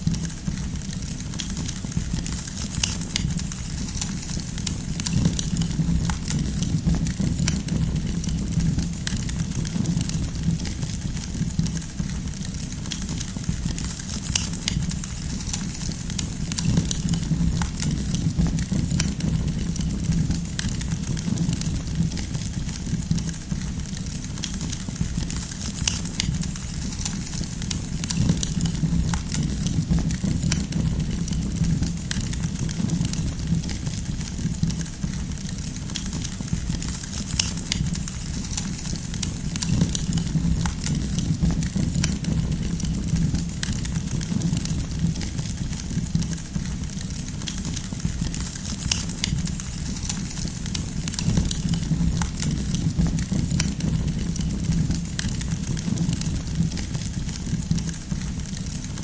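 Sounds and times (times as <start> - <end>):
firewood crackling and popping: 0.0 - 59.0
low rumble of flames: 0.0 - 59.0.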